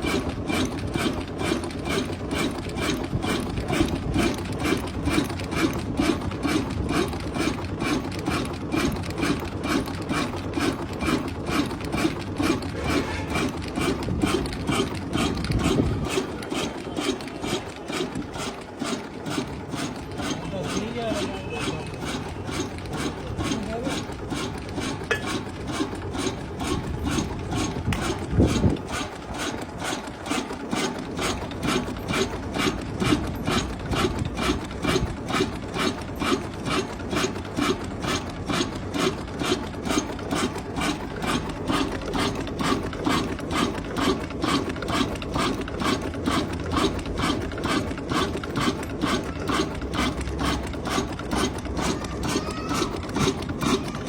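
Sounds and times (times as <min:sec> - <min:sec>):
engine knock: 0:00.0 - 0:54.0.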